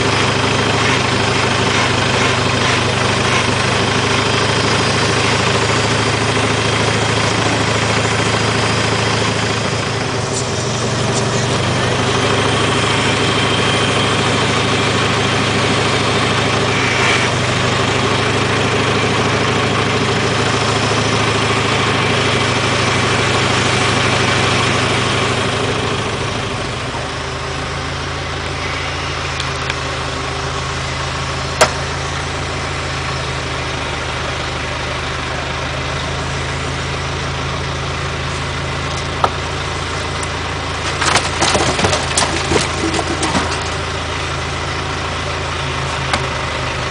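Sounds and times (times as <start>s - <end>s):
clatter: 0.0s - 26.9s, 38.8s - 46.9s
tractor engine running: 0.0s - 46.9s.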